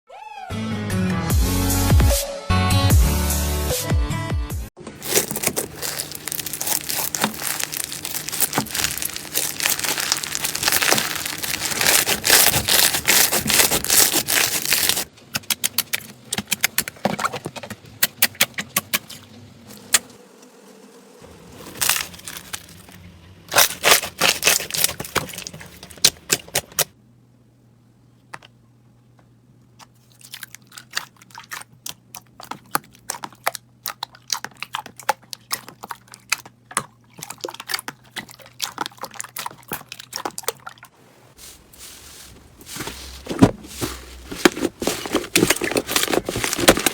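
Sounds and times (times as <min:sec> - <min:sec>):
slime crackling and popping: 0:05.0 - 0:16.8, 0:21.7 - 0:22.9, 0:23.5 - 0:26.8, 0:42.7 - 0:46.9.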